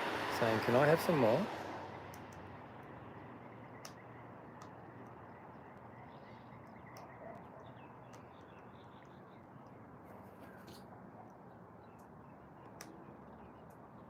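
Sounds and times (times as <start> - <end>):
distant bird calls: 0.0 - 14.0
soft clicks: 2.0 - 3.0, 3.6 - 9.8.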